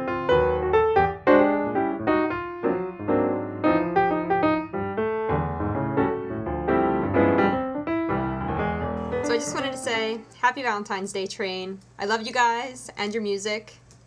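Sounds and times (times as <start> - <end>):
solo piano melody: 0.0 - 10.4.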